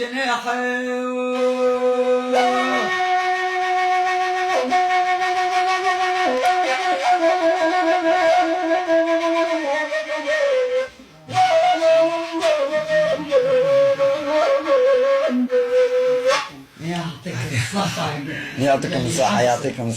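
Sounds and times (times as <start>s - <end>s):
reed flute melody: 1.1s - 16.7s.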